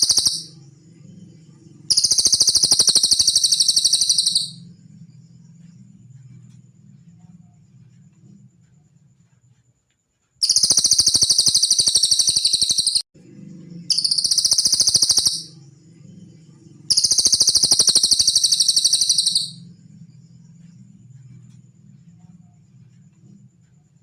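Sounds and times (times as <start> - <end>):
songbird trilling: 0.0 - 0.6, 1.9 - 4.6, 10.4 - 13.0, 13.9 - 15.6, 16.9 - 19.6.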